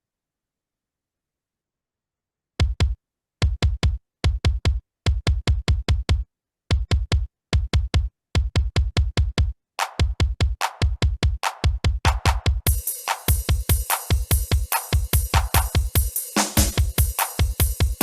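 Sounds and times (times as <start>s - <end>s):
deep drum machine kicks: 2.6s - 18.0s
bright hissy percussion: 12.7s - 18.0s.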